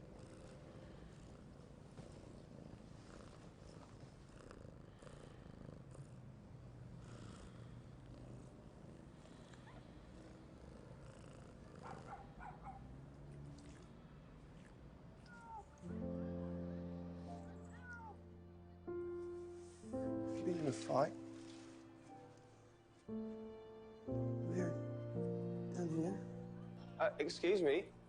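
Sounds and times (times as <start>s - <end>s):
cat purring: 0.0s - 21.8s.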